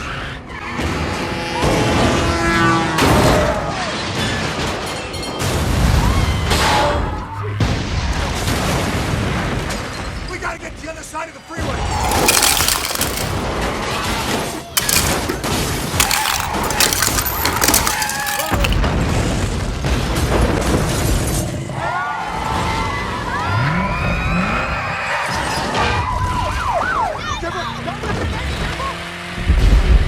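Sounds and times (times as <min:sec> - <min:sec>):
crashes and shattering: 0:11.9 - 0:13.5, 0:14.6 - 0:18.8.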